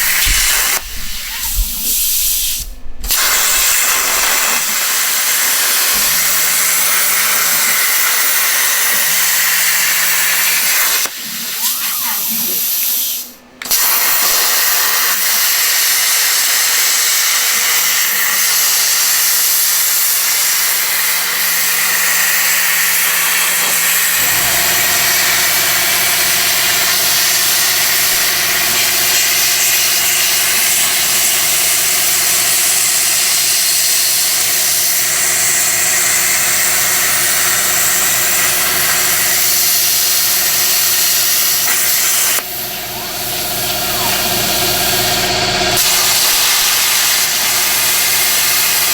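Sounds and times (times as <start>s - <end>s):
machine hum with fixed tones: 0.0s - 11.4s, 23.7s - 48.9s
plasma cutter hissing: 0.0s - 48.9s.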